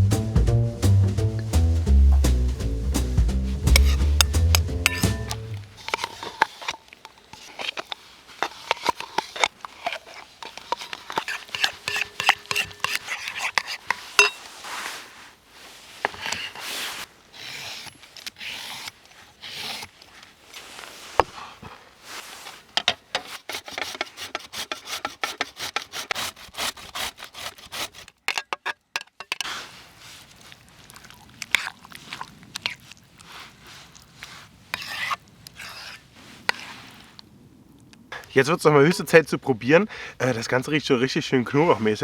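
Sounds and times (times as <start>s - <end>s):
kitchen utensils scraping: 3.7s - 15.1s, 22.3s - 29.6s, 34.8s - 36.8s.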